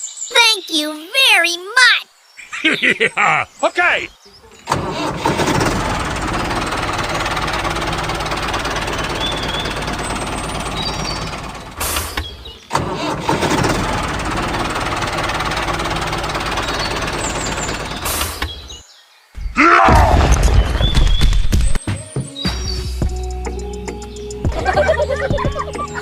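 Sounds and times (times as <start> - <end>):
model tractor engine running: 4.7 - 18.5.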